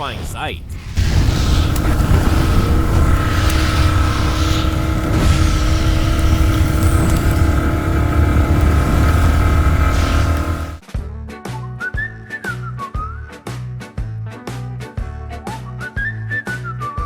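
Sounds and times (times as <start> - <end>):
engine running with low rumble: 0.9 - 10.8.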